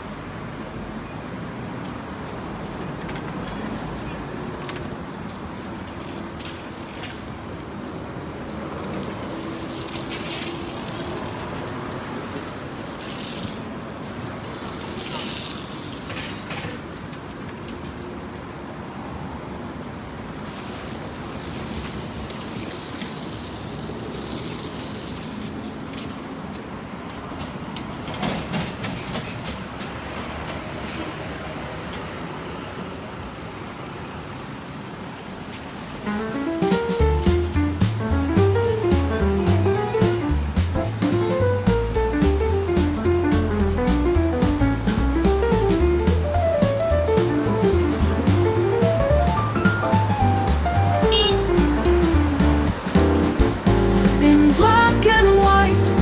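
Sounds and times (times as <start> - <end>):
street rumble: 0.0 - 15.0, 35.6 - 56.0
traffic noise: 0.0 - 56.0.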